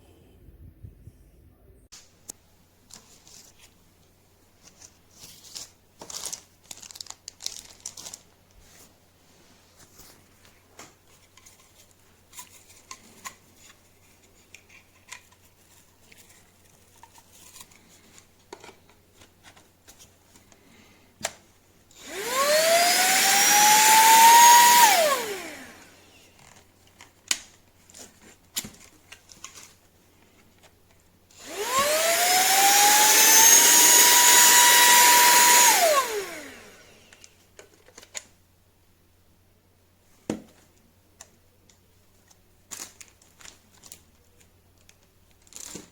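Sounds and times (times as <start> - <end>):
small clicks and handling noises: 9.9 - 21.5, 26.3 - 31.1, 37.0 - 38.4, 40.3 - 45.9
handheld vacuum cleaner motor whine: 22.0 - 26.3, 31.3 - 37.2.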